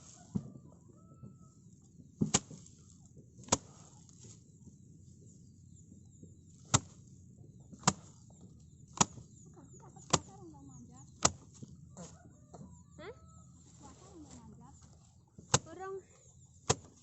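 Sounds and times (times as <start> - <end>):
rice stalks striking wooden frame: 2.1 - 4.4, 6.6 - 7.1, 7.7 - 9.4, 10.0 - 10.5, 11.1 - 12.1, 13.7 - 15.8, 16.6 - 17.0.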